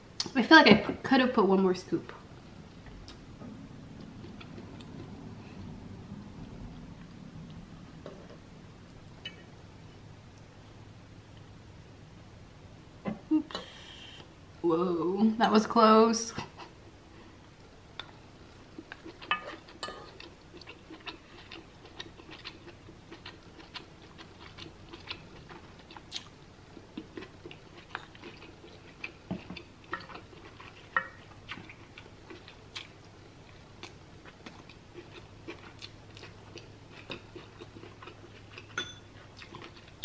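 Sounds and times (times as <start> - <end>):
person chewing: 3.9 - 5.7, 18.0 - 40.0.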